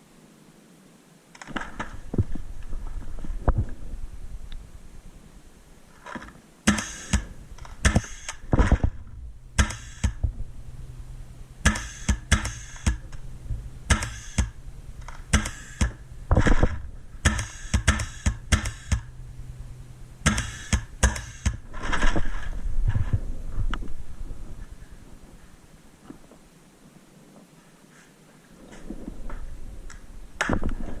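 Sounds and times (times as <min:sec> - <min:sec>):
paintball markers firing: 0:06.7 - 0:08.9, 0:09.6 - 0:10.3, 0:11.6 - 0:13.2, 0:13.9 - 0:19.1, 0:20.2 - 0:21.6.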